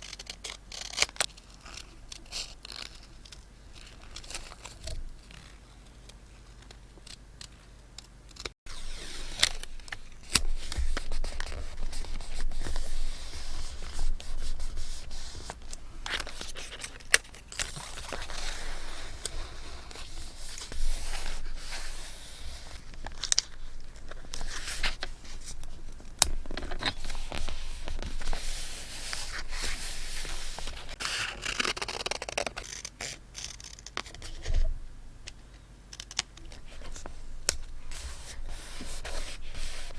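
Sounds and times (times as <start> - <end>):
paper scraping and rustling: 8.7 - 34.7, 36.5 - 39.9.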